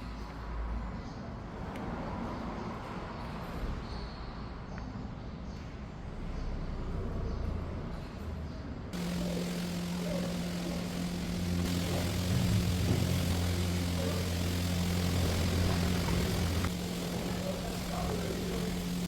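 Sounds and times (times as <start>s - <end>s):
wide noisy background: 0.0s - 19.0s
mechanical hum with two low tones: 9.0s - 19.0s.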